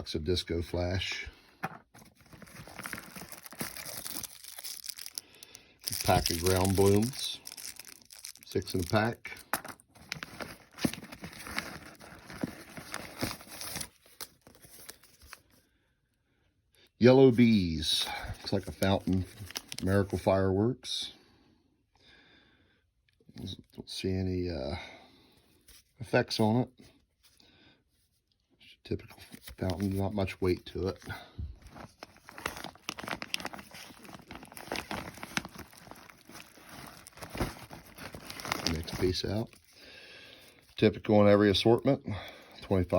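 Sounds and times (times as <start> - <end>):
rustling plastic and cardboard: 1.6 - 15.6, 18.3 - 20.2, 29.2 - 39.8.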